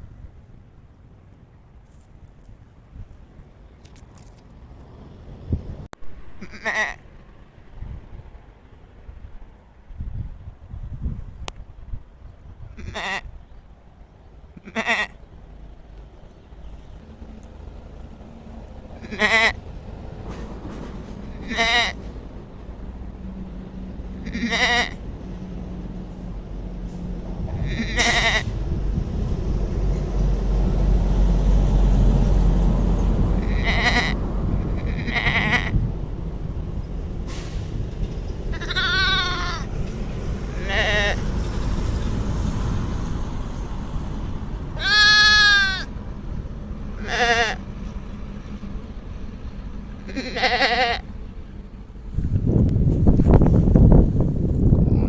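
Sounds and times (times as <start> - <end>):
lamb bleating: 6.4 - 7.0, 12.8 - 13.3, 14.6 - 15.2, 19.0 - 19.6, 21.4 - 22.0, 24.2 - 25.0, 27.6 - 28.5, 33.4 - 34.2, 34.8 - 35.8, 38.5 - 39.7, 40.5 - 41.2, 44.8 - 45.9, 47.0 - 47.6, 50.1 - 51.0
low rumbling noise: 15.2 - 55.0.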